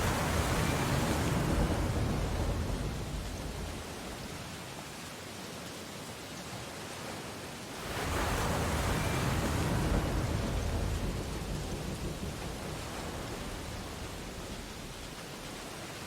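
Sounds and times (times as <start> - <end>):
wave breaking: 0.0 - 4.5, 7.8 - 15.8
surf hissing: 0.0 - 4.6, 7.8 - 16.0.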